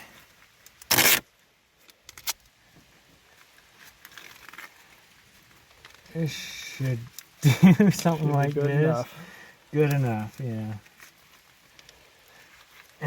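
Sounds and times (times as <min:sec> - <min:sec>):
tape crinkling: 0:00.5 - 0:02.5, 0:03.3 - 0:09.1, 0:09.7 - 0:13.0
tape ripping off roll: 0:00.6 - 0:01.3.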